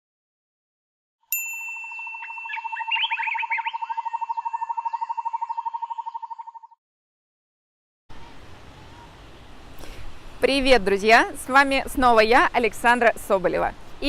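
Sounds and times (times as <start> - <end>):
bright ding: 1.3 - 3.4
bird-like chirps: 2.1 - 6.8.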